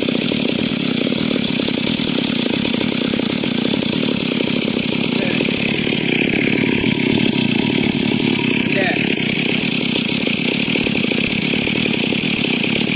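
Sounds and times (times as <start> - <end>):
chainsaw ripping timber: 0.0 - 12.9.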